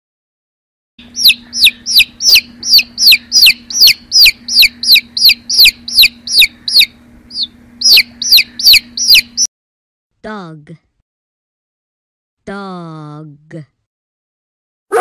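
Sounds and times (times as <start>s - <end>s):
chicks peeping: 1.0s - 9.5s.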